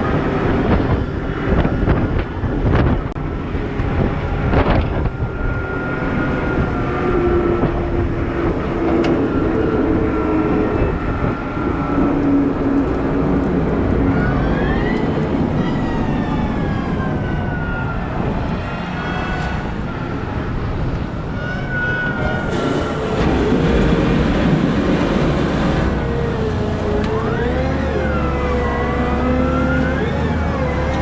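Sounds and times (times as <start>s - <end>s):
diesel engine rumbling: 0.0s - 18.6s, 22.1s - 31.0s
hydraulic whine: 22.2s - 31.0s.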